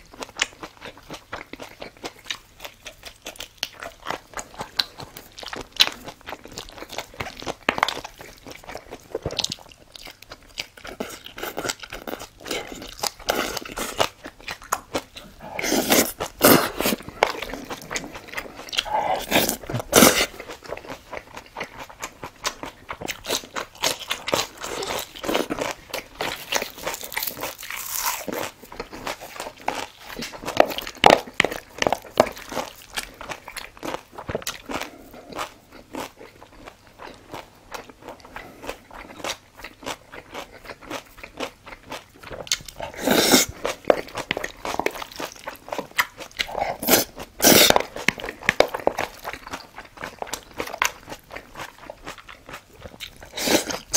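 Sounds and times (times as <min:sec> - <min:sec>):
person chewing and crunching food: 0:00.0 - 0:53.9
wet mouth noises: 0:12.4 - 0:20.4.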